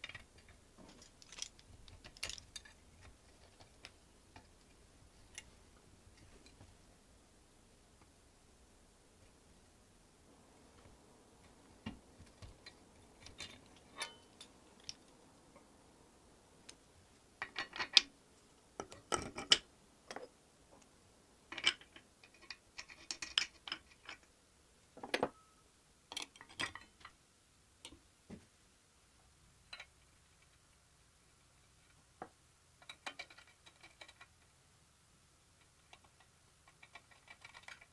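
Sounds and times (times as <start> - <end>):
metal parts and tools clinking: 0.0 - 3.7, 12.6 - 15.0.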